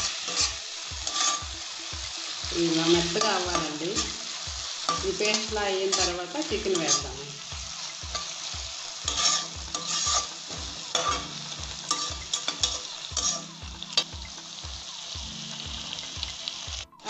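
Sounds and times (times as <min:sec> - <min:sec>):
background music with low beat: 0:00.0 - 0:17.0
vegetables sizzling in oil: 0:00.0 - 0:17.0
spatula scraping and tapping: 0:00.3 - 0:01.5, 0:09.1 - 0:11.2.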